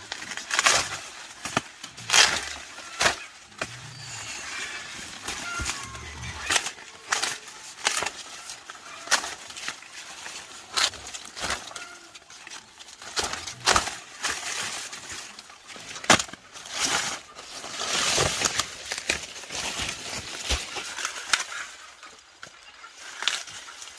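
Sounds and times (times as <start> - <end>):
stalks snapping: 0.0 - 4.0, 5.2 - 14.7
dry leaves rustling: 0.0 - 23.9.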